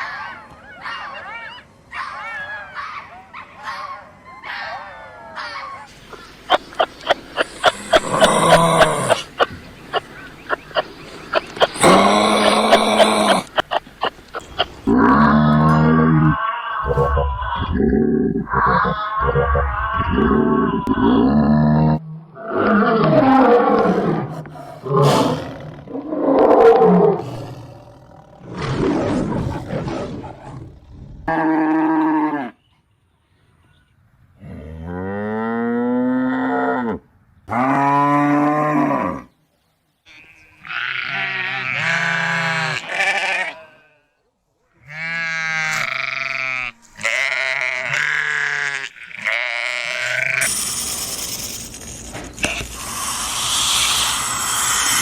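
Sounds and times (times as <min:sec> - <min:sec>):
high wavering animal calls: 0:00.0 - 0:21.3
animal roars: 0:06.5 - 0:32.6.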